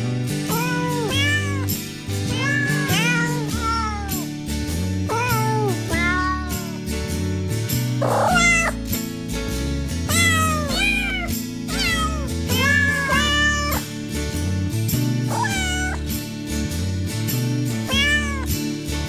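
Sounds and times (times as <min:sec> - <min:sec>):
background music: 0:00.0 - 0:19.0
kittens mewing: 0:00.5 - 0:04.3, 0:05.1 - 0:06.8, 0:08.0 - 0:08.9, 0:10.1 - 0:13.9, 0:15.3 - 0:16.1, 0:17.9 - 0:18.6.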